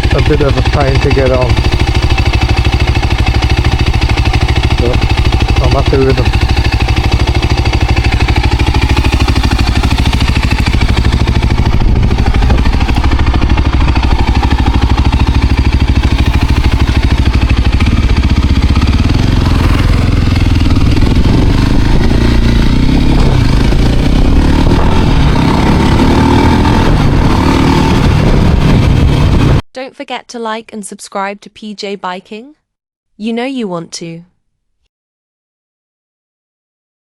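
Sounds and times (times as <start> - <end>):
motorcycle engine running: 0.0 - 29.6.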